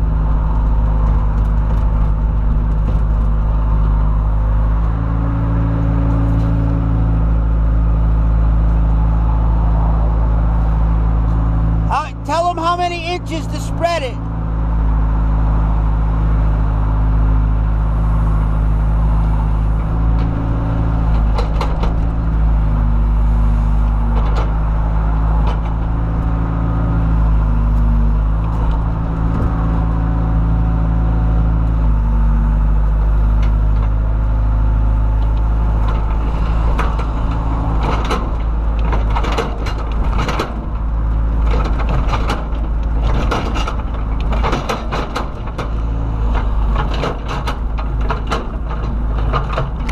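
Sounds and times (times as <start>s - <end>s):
excavator diesel engine running: 0.0s - 49.9s
clattering knocks and scrapes: 23.9s - 26.4s, 35.2s - 49.9s.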